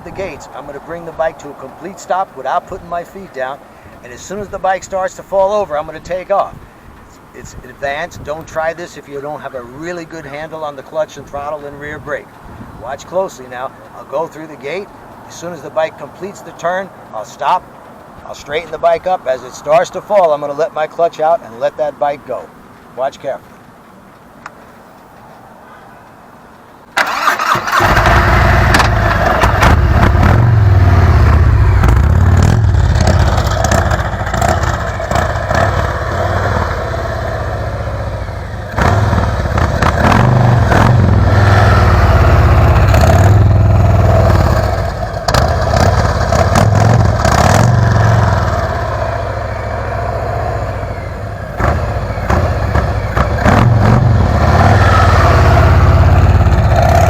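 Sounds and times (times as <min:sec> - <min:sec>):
motorcycle engine revving: 0:27.0 - 0:57.0.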